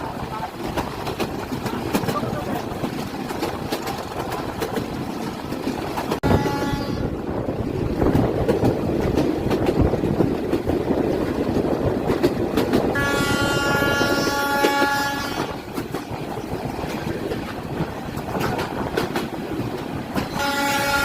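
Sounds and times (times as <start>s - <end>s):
train wheels clattering on rails: 0.0s - 21.0s
locomotive horn blast: 6.2s - 7.1s, 13.0s - 15.6s, 20.3s - 21.0s.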